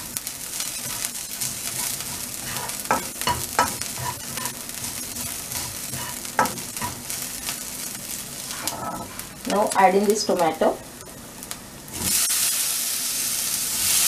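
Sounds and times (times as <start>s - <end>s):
spatula scraping wok: 0.0s - 9.4s
onion and ginger sizzling: 0.0s - 14.0s.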